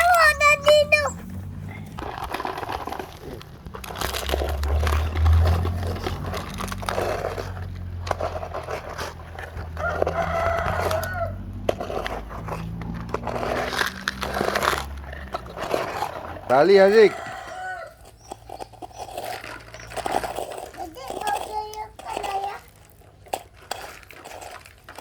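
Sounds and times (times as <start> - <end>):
low engine hum: 0.0 - 15.6
rooster crowing: 9.8 - 11.4, 16.9 - 18.1.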